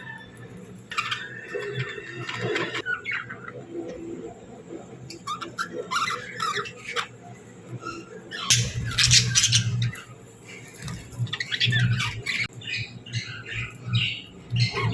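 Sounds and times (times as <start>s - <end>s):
budgerigars chirping: 8.3s - 10.0s, 11.3s - 14.9s.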